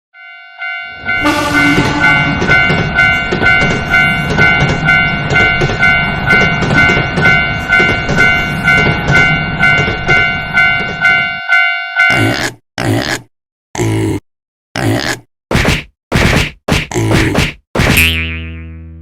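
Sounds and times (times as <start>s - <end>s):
railroad crossing bell ringing: 0.2s - 12.3s
low rumble of passing train: 0.6s - 11.7s.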